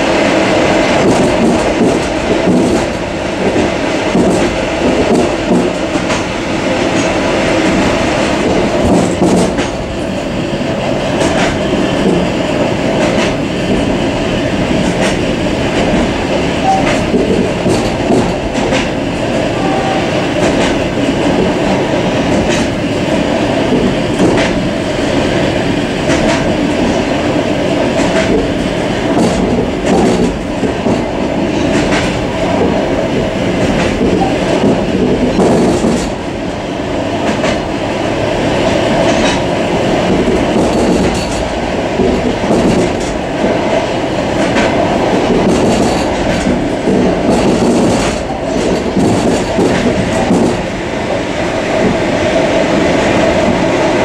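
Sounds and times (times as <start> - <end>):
train car rumble and rattle: 0.0 - 54.0
wheels clacking over rail joints: 1.0 - 6.3, 6.9 - 9.9, 14.6 - 22.8, 23.4 - 25.4, 26.0 - 27.2, 27.8 - 36.3, 38.6 - 51.2.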